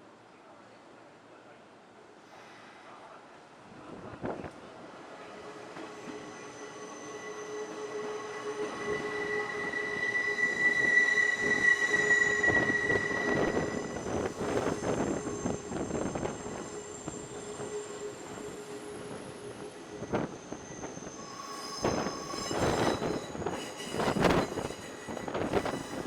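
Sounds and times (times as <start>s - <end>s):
train wheels squealing on rails: 5.2s - 26.0s.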